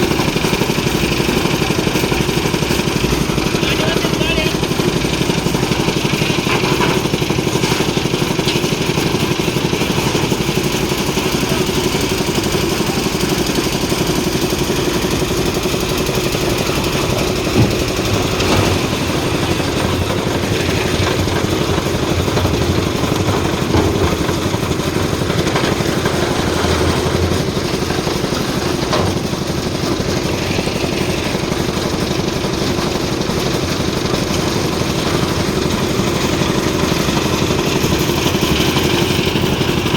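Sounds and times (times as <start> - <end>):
concrete mixer engine running: 0.0 - 39.9.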